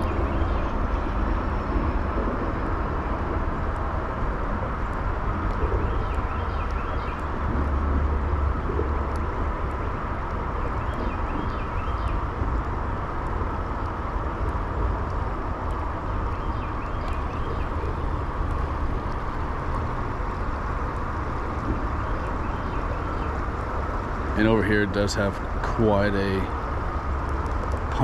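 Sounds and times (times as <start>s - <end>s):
creek water running: 0.0s - 28.0s
low rumble: 0.0s - 28.0s.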